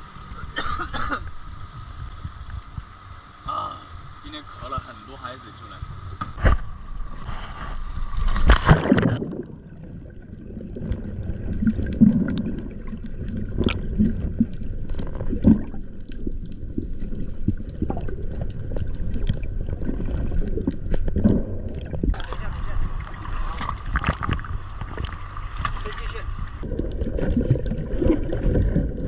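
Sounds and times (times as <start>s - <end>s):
underwater bubbling and gurgling: 5.8s - 29.0s
small underwater clicks: 8.3s - 22.2s
muffled underwater sea sound: 16.9s - 29.0s.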